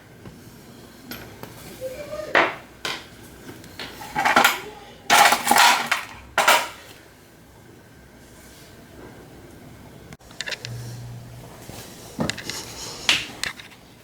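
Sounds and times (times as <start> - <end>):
metal tools clinking: 4.0 - 6.8.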